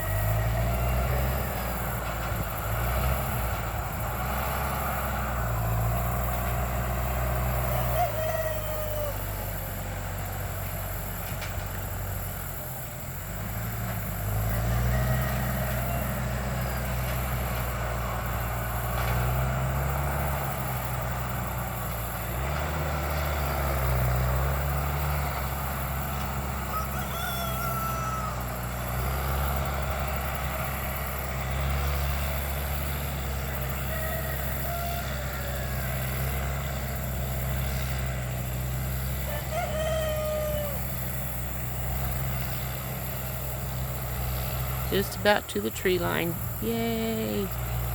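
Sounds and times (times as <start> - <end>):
roosters crowing: 0.0 - 12.9, 14.0 - 44.2
bulldozer diesel engine: 0.0 - 47.9.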